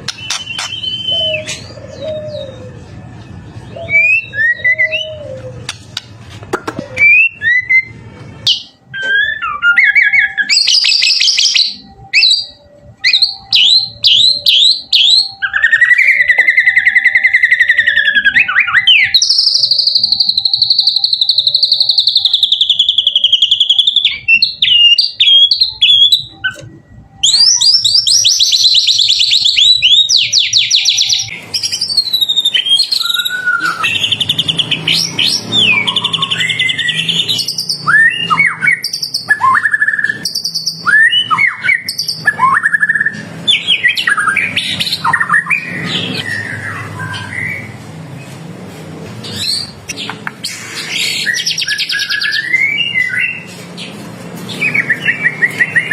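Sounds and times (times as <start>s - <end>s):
bird singing whistled phrases: 0.0s - 2.7s, 3.7s - 5.4s, 7.0s - 47.8s, 50.9s - 53.5s
rapid buzzy bird trill: 0.0s - 2.9s.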